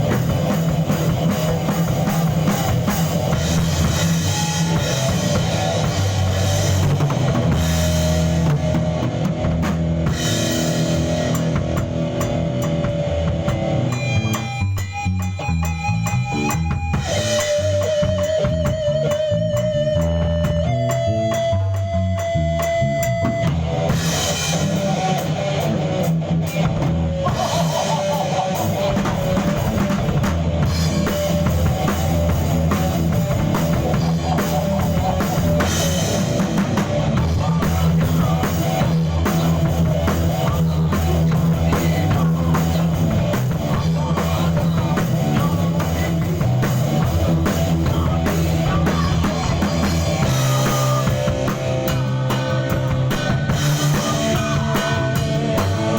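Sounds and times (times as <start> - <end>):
drum kit: 0.0 - 55.9
guitar: 0.0 - 55.9.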